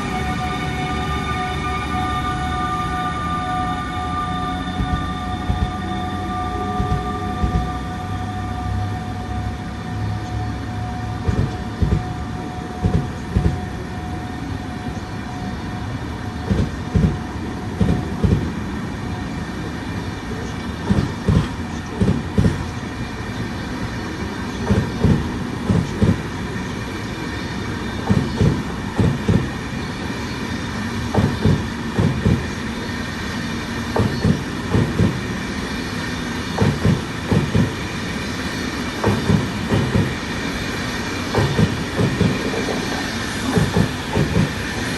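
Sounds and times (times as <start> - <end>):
train rumble: 0.0 - 44.9
train wheels clacking over rail joints: 20.8 - 22.7, 24.6 - 26.2, 31.1 - 32.5, 33.9 - 35.3, 36.5 - 37.8, 39.0 - 40.3, 41.2 - 44.8.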